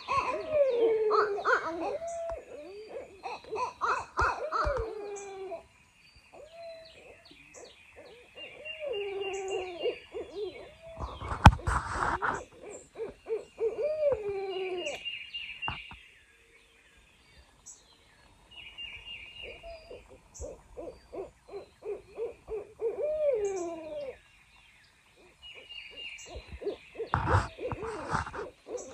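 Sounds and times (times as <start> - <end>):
owls hooting: 0.0 - 5.6, 6.3 - 15.0, 19.4 - 24.2, 25.2 - 28.9
faint songbirds singing: 0.0 - 28.9
loud rustle with sharp knock: 11.2 - 12.4, 27.2 - 28.6.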